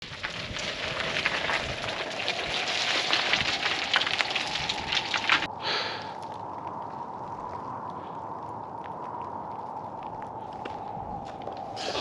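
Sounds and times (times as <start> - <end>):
wind-driven snow hissing: 11.6 - 12.0.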